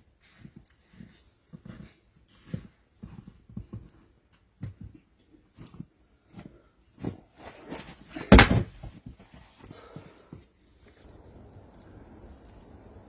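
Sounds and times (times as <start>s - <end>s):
loud bang: 8.3s - 8.7s
irregular knocks and thumps: 8.3s - 8.8s.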